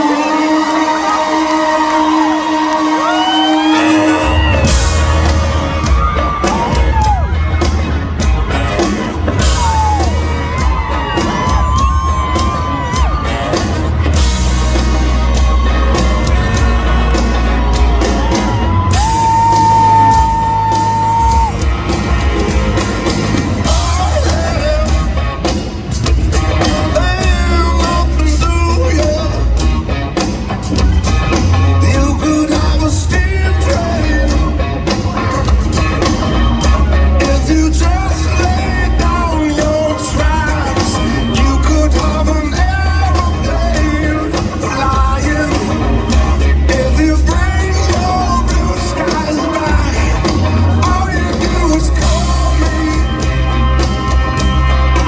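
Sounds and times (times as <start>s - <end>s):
person singing lead vocal: 0.0s - 8.0s, 23.6s - 25.7s, 26.4s - 30.1s, 31.3s - 35.5s, 36.5s - 55.0s
rock band playing live: 0.0s - 55.0s.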